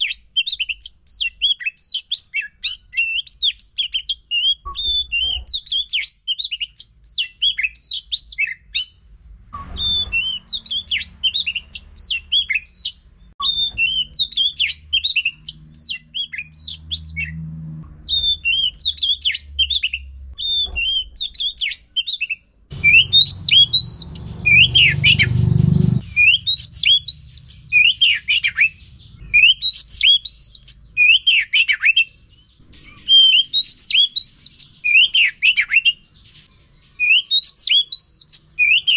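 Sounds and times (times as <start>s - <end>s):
bird singing whistles and chirps: 0.0s - 38.9s
low rumble: 22.7s - 29.4s.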